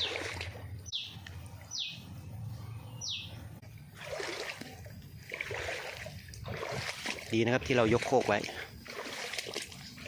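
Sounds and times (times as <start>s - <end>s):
bird calling: 2.7s - 3.4s.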